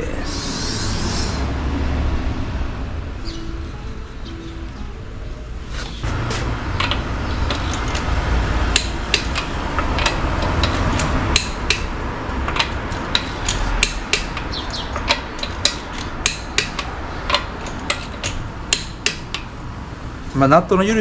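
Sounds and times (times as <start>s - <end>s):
low rumble: 6.0s - 15.4s
tool clinking on wheel nuts: 8.7s - 19.5s.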